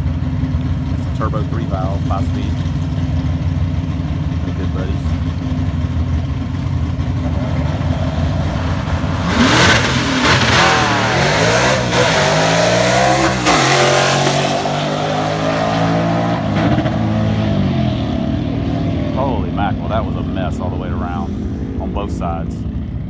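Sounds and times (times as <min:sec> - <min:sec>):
drag car engines rumbling: 0:00.0 - 0:23.0
car launching and shifting gears: 0:05.2 - 0:23.0.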